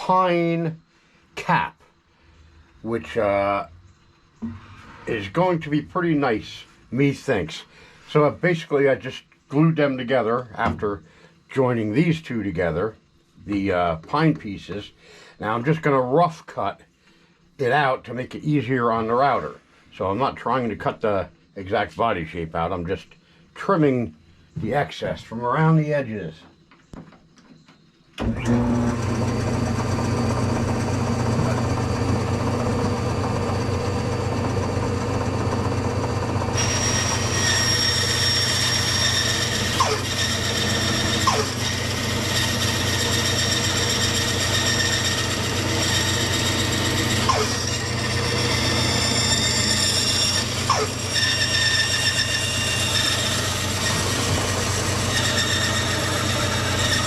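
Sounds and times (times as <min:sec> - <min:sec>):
bandsaw blade cutting wood: 0:28.2 - 0:57.0
bandsaw humming: 0:28.2 - 0:57.0.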